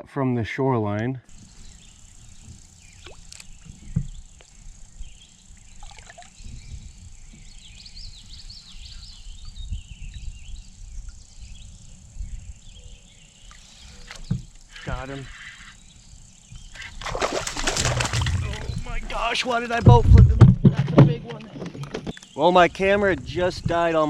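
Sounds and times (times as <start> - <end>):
bird chirping: 1.3 - 20.0
wind rumble on microphone: 1.4 - 13.2, 16.0 - 24.0.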